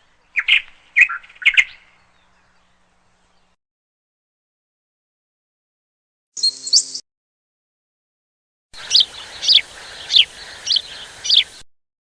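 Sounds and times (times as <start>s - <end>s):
bird calls: 0.0s - 3.6s, 8.8s - 11.6s
faint outdoor hiss: 0.0s - 3.6s, 8.8s - 11.6s.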